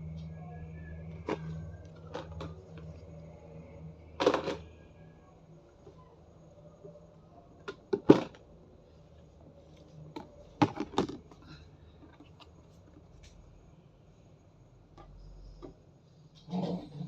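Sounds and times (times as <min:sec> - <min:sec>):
objects knocking and clattering: 0:10.1 - 0:12.4.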